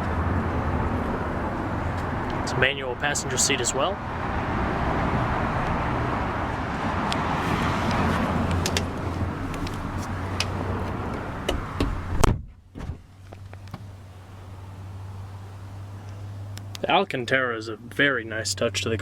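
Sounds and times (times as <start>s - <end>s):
outdoor traffic noise: 0.0s - 19.0s
car door shutting thud: 11.4s - 13.1s.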